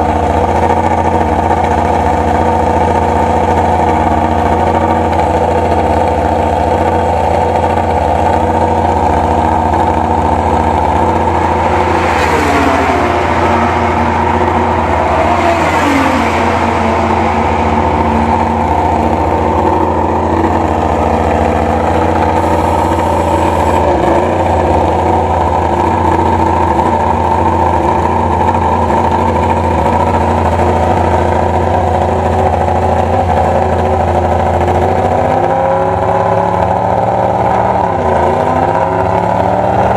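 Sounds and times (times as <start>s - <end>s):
motorcycles passing by: 8.3s - 27.2s.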